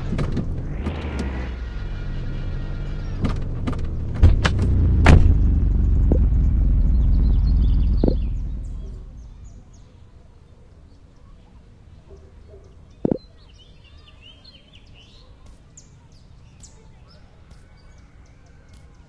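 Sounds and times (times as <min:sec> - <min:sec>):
vehicle rumble: 0:00.0 - 0:10.3
birds chirping: 0:00.0 - 0:19.0
sharp knock: 0:04.1 - 0:06.4.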